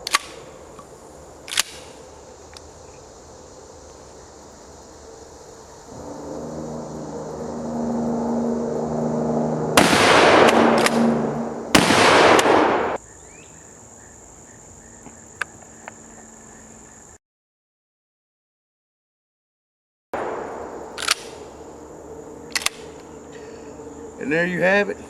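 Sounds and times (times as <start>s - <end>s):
insects buzzing: 0.0s - 17.2s, 20.2s - 25.0s
shotgun blasts: 9.8s - 11.1s, 11.7s - 13.0s, 20.2s - 21.6s
sharp clicks: 20.8s - 21.4s, 22.5s - 23.1s.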